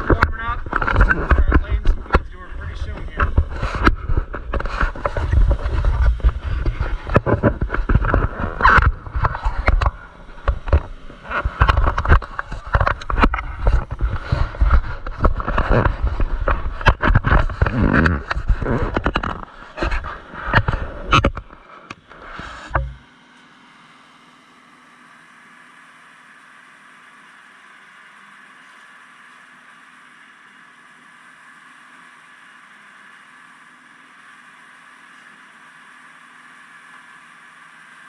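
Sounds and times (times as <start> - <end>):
welding arc crackling: 0.0 - 23.0
faint steady hum: 0.0 - 38.0.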